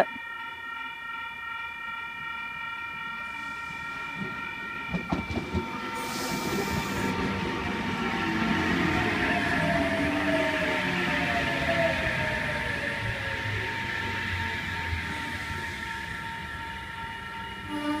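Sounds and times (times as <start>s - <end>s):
electric train rumble: 0.0s - 18.0s
train wheels clicking over rail joints: 4.2s - 7.4s.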